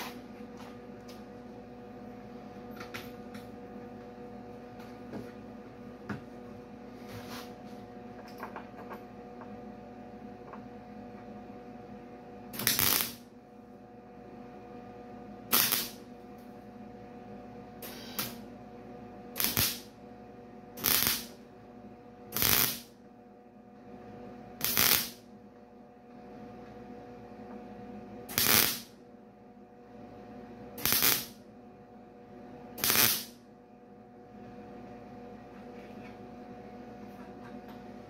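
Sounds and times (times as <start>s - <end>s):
electrical hum: 0.0s - 38.0s
welding bursts: 12.6s - 13.2s, 15.5s - 16.0s, 19.4s - 19.9s, 20.8s - 21.3s, 22.3s - 22.9s, 24.6s - 25.2s, 28.3s - 28.9s, 30.8s - 31.4s, 32.8s - 33.4s.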